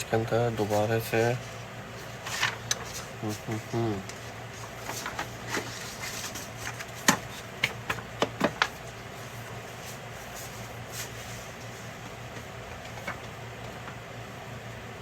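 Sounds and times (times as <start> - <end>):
clicks and knocks of printer parts: 4.8 - 8.8.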